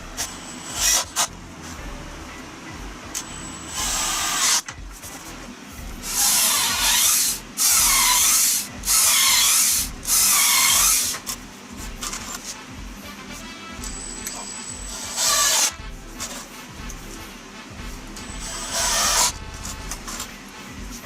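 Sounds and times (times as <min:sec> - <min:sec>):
saw rasping through wood: 0:06.0 - 0:12.6, 0:14.8 - 0:17.1, 0:18.0 - 0:20.4.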